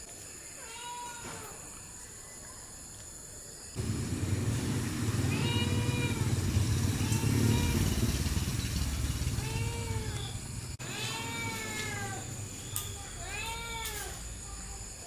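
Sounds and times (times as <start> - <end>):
loud low rumble: 3.8 - 10.8
cat meowing: 5.3 - 6.3, 9.4 - 12.3, 13.0 - 14.2.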